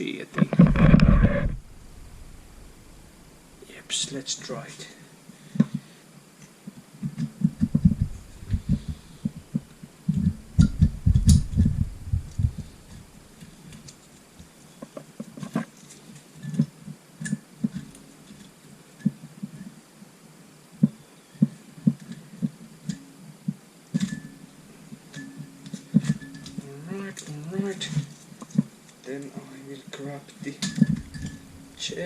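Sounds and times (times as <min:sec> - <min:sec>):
dull low thuds and knocks: 0:07.0 - 0:13.1.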